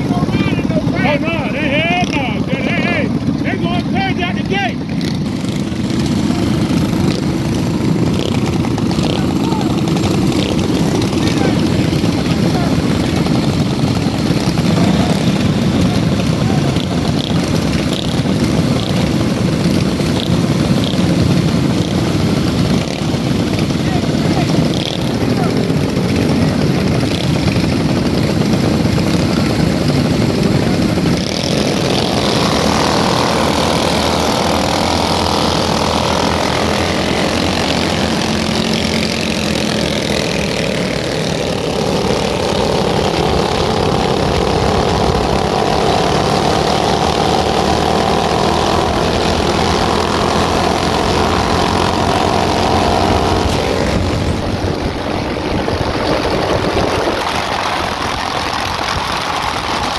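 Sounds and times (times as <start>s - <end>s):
small motorcycle engines: 0.0s - 59.9s
wind on microphone: 53.4s - 59.9s.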